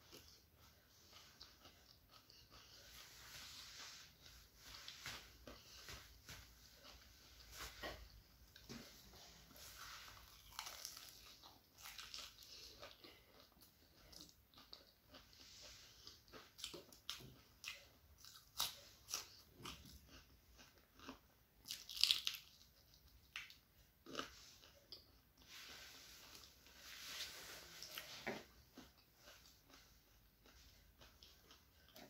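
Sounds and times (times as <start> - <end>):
person chewing: 0.0 - 32.0
crisp crunching of fried food: 10.1 - 15.2, 16.1 - 24.7.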